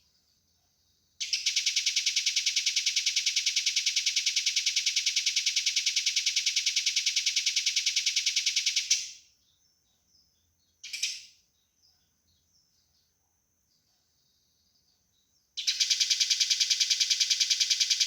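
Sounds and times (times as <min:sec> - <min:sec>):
sparrow harsh chirps: 0:10.8 - 0:11.4.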